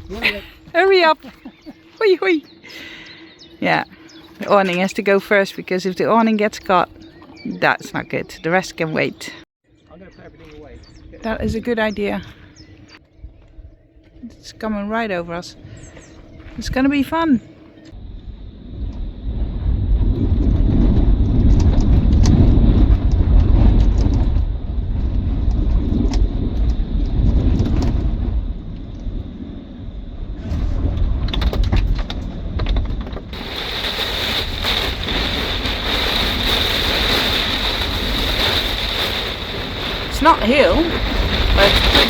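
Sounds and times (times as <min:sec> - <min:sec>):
wind gusts buffeting microphone: 0:10.3 - 0:13.8, 0:14.6 - 0:42.0
heavy rain drumming: 0:33.3 - 0:42.0.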